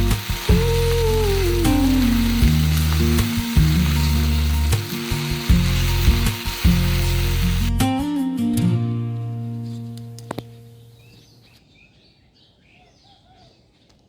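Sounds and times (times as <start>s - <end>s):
food sizzling in a pan: 0.0s - 7.8s
background music: 0.0s - 10.8s.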